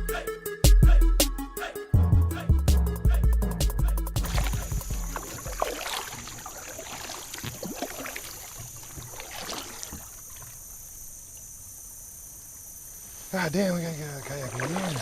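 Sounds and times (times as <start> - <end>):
paddle splashes: 4.2 - 11.0, 13.8 - 15.0
high insect buzz: 4.2 - 15.0.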